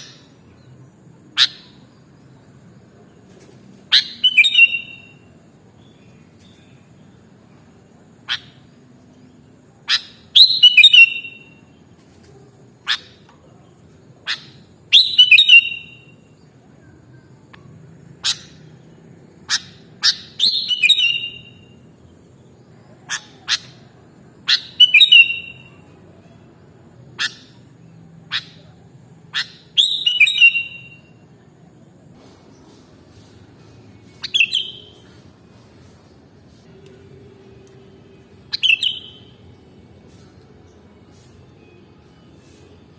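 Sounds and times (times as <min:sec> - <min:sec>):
bulbul singing whistled phrases: 0:03.9 - 0:07.1, 0:09.8 - 0:11.8, 0:14.3 - 0:25.9, 0:27.2 - 0:31.2, 0:34.1 - 0:35.2, 0:36.7 - 0:42.9.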